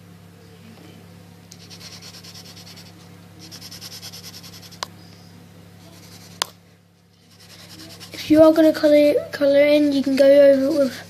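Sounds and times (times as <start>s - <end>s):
steady low hum: 0.0s - 11.0s
pencil scribbling on paper: 1.6s - 4.8s, 7.3s - 8.3s, 9.8s - 11.0s.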